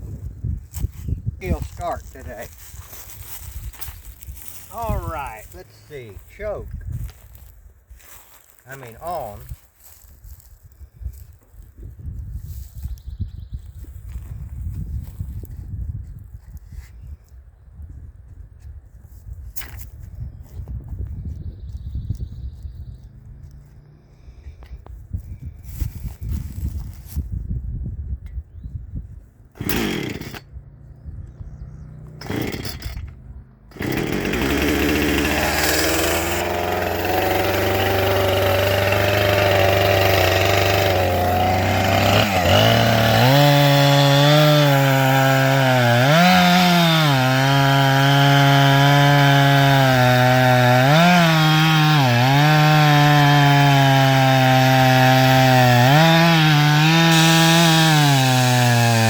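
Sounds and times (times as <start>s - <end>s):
chainsaw cutting wood: 1.4s - 6.6s, 8.6s - 9.4s, 29.6s - 30.5s, 32.0s - 59.0s
chainsaw starting and idling: 4.4s - 6.6s, 8.7s - 9.4s, 29.6s - 30.5s, 32.0s - 59.0s.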